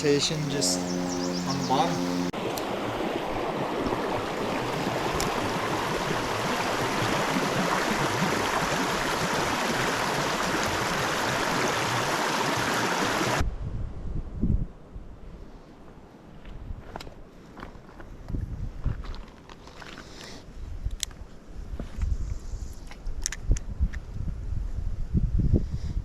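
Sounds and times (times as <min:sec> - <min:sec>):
rushing river water: 0:00.0 - 0:13.4.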